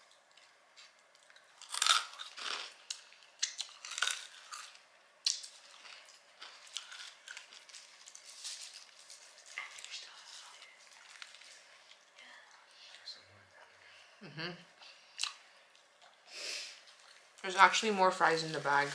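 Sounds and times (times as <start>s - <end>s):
person chewing crunchy food: 0.0s - 12.1s.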